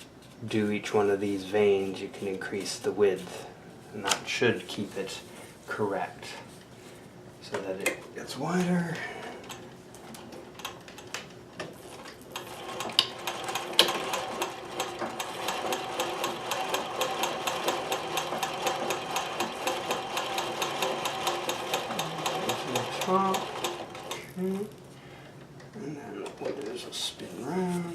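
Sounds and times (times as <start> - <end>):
sewing machine stitching: 11.9 - 24.3.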